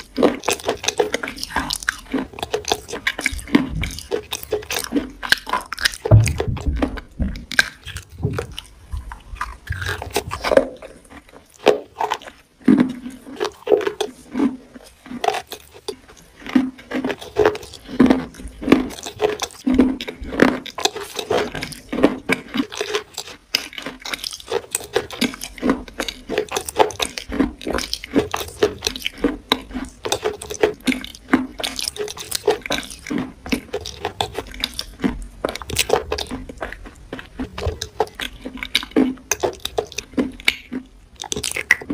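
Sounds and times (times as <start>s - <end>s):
person chewing crunchy food: 0.0s - 41.9s.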